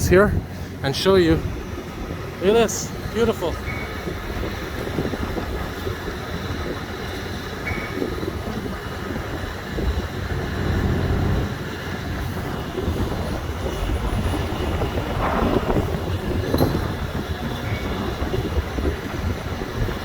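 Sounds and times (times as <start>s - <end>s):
city traffic rumble: 0.0s - 20.0s.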